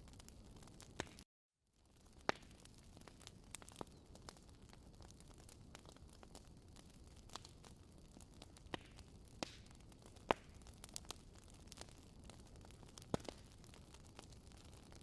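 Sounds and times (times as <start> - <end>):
campfire pops and snaps: 0.0 - 1.2, 1.9 - 15.0.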